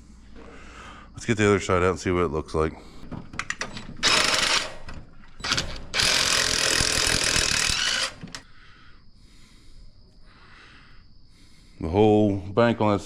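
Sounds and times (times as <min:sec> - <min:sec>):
ratchet clicking: 0:03.4 - 0:08.4.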